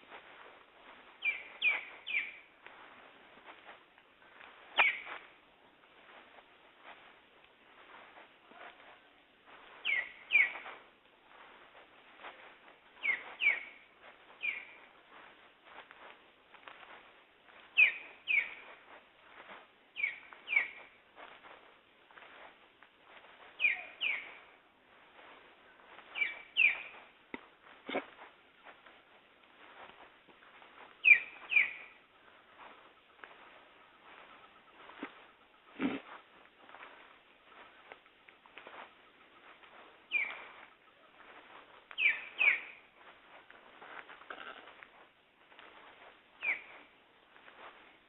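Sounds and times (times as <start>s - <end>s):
faint background birds: 0.0s - 48.0s
songbird whistling: 1.2s - 2.5s, 4.8s - 5.3s, 9.8s - 10.8s, 13.0s - 14.8s, 17.8s - 18.8s, 20.0s - 20.9s, 23.6s - 24.5s, 26.1s - 27.0s, 31.0s - 32.0s, 40.1s - 42.8s, 46.4s - 46.9s.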